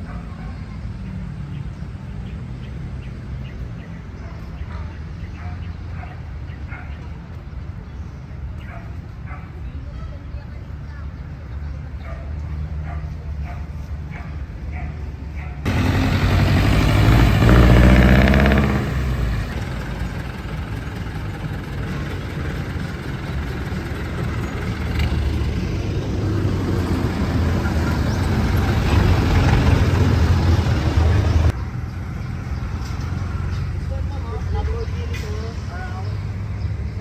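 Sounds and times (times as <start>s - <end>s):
street traffic rumble: 0.0s - 37.0s
vehicle engine running close by: 10.5s - 37.0s.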